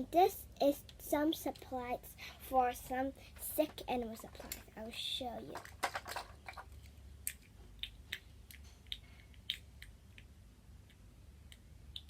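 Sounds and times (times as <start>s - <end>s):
plastic toy bricks clicking: 5.5s - 10.3s.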